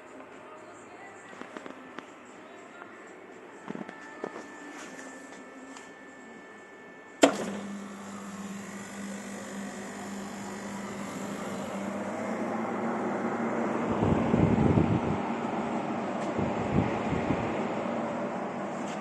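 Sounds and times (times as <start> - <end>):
water chiller humming: 5.9 - 19.0
rushing fan and water noise: 11.8 - 18.7.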